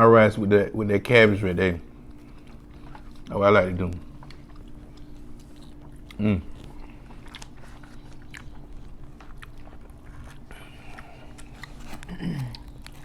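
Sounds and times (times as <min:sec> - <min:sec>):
person chewing food: 0:01.2 - 0:13.0
person humming: 0:12.0 - 0:12.7.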